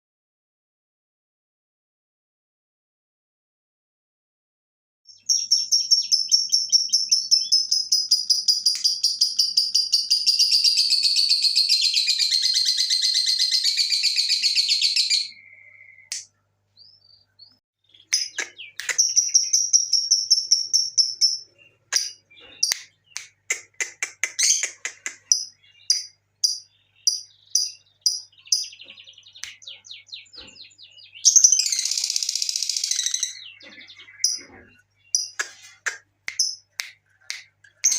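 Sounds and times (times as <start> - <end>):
lovebird sharp chirps: 5.2 - 16.3, 17.9 - 36.9
lovebird chattering trill: 18.0 - 30.4, 31.1 - 36.8.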